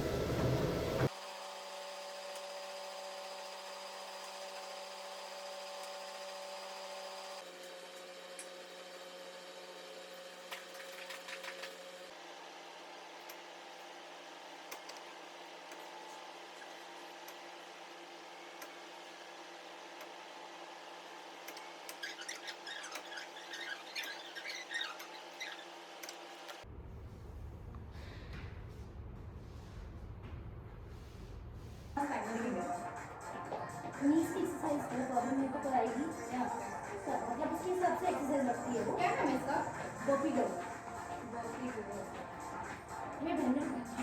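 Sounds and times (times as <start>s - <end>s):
machine hum with whining tones: 0.0s - 44.0s
short high squeaks: 21.8s - 26.2s
steady hum: 26.6s - 44.0s.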